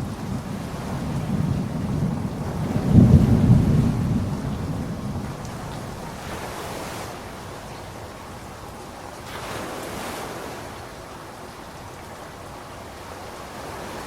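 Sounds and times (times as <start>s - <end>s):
low rumble of thunder: 0.0s - 8.6s
steady rain: 0.0s - 14.0s.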